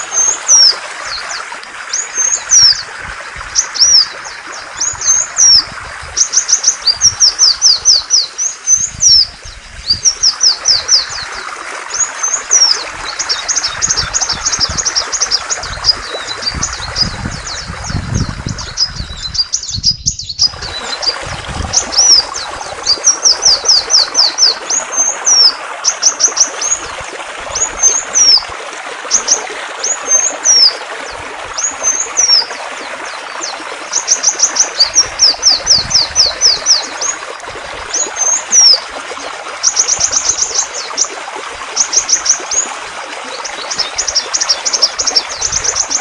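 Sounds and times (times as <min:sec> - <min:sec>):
songbird chirping and trilling: 0:00.0 - 0:02.9, 0:03.5 - 0:26.9, 0:29.1 - 0:37.2
flowing water: 0:00.0 - 0:46.0.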